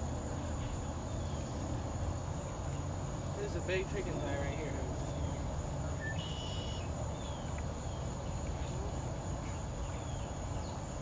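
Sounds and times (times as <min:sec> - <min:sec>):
bird chirps: 0:05.0 - 0:08.4.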